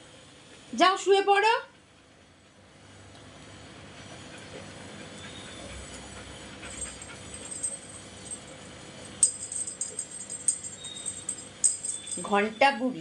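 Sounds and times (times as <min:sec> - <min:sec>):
dog collar jingling: 0:06.7 - 0:12.6.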